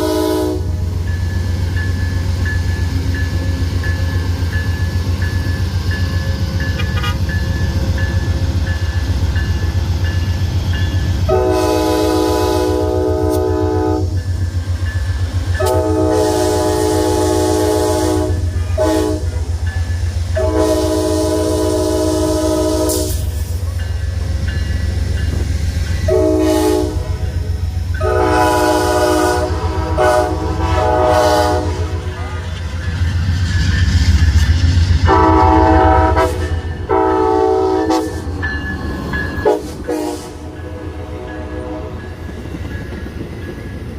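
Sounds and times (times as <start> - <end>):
locomotive air horn: 0.0 - 0.8, 6.7 - 7.3, 11.3 - 14.1, 15.6 - 19.5, 20.3 - 23.3, 26.1 - 27.4, 28.0 - 32.4, 35.1 - 38.3, 39.4 - 42.1
train rumbling past: 0.0 - 43.9.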